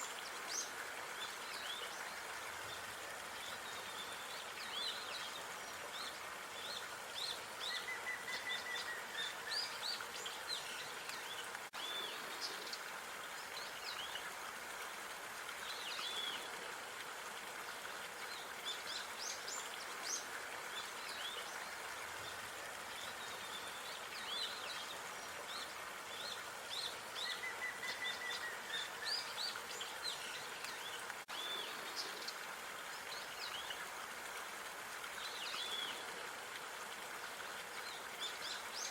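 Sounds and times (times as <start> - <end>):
outdoor background hiss: 0.0 - 38.9
small songbirds chirping: 18.2 - 33.9.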